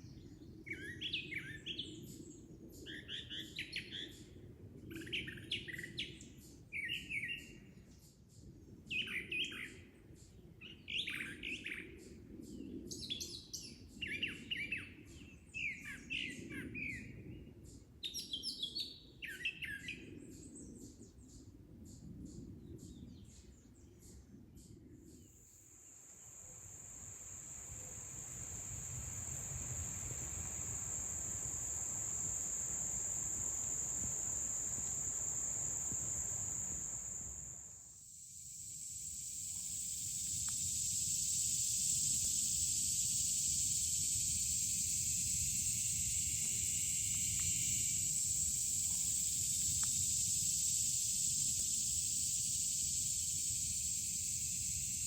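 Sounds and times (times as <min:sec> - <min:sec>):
high-pitched insect chorus: 0:25.4 - 0:55.0.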